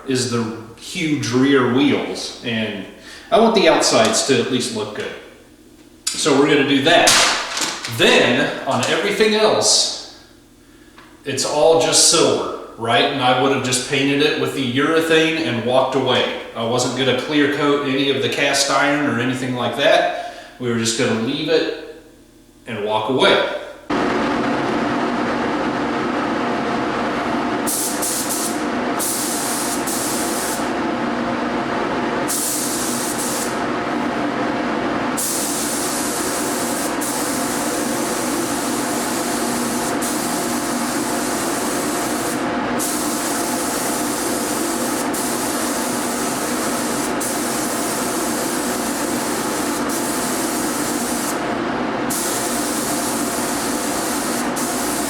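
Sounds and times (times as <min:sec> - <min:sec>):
paint spray gun hissing: 0:07.1 - 0:07.9, 0:27.6 - 0:30.8, 0:32.2 - 0:33.7, 0:35.2 - 0:55.0.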